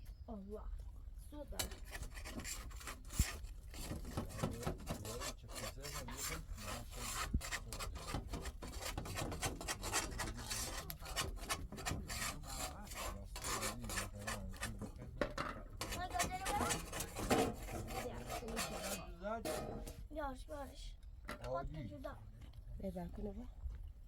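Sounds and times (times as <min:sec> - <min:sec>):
hand tool scraping strokes: 0:01.6 - 0:15.1, 0:15.8 - 0:20.0.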